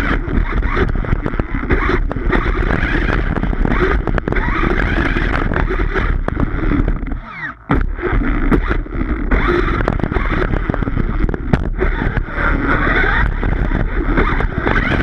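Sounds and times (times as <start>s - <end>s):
electric rc car running on grass: 0.0s - 15.0s.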